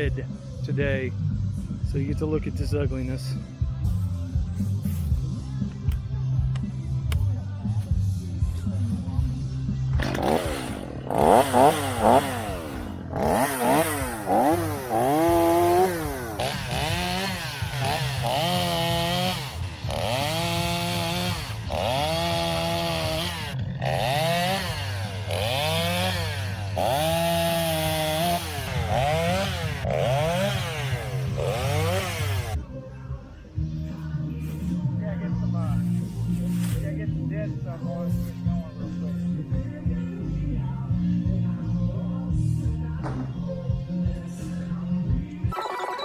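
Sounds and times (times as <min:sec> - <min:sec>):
chainsaw cutting wood: 0:09.9 - 0:32.6.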